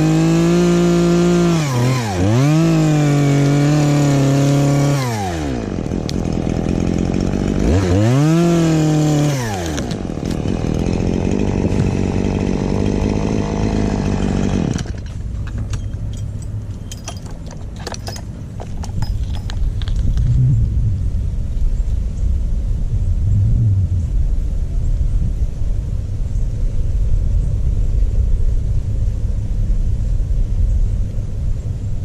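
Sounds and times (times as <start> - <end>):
chainsaw engine revving: 0.0 - 15.1.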